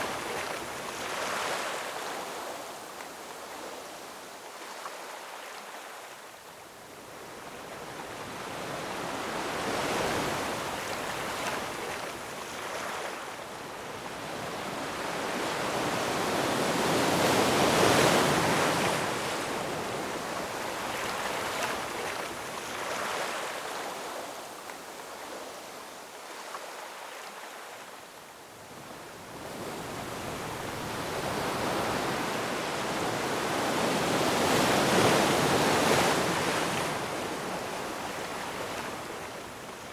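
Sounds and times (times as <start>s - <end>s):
ocean waves breaking over rocks: 7.8s - 27.8s, 28.8s - 39.9s.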